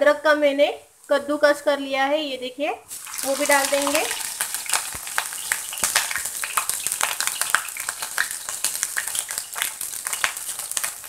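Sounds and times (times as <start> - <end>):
garlic sizzling in hot oil: 2.9 - 11.0.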